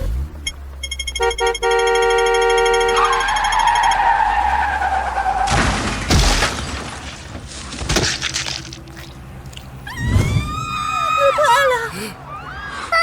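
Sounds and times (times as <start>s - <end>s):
car horn: 0.9s - 4.2s
tyres screeching: 2.7s - 5.6s
car crash: 3.9s - 8.8s.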